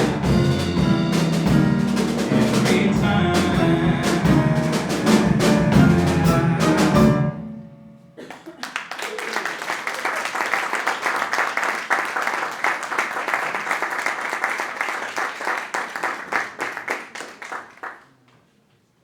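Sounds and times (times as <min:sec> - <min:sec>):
audience applauding: 0:08.2 - 0:18.4.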